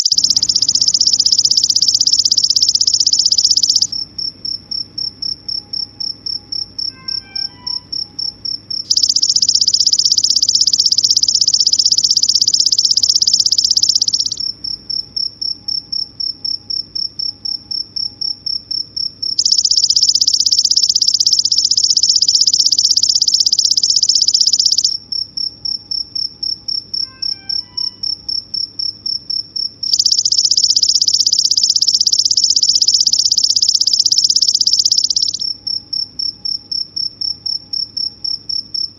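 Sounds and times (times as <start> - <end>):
faint bird chirps: 0.0 - 4.0, 6.8 - 8.3, 8.9 - 14.5, 19.4 - 25.0, 27.0 - 28.2, 29.9 - 35.5
insect trilling and buzzing: 0.0 - 14.5, 19.3 - 25.0, 29.9 - 36.0.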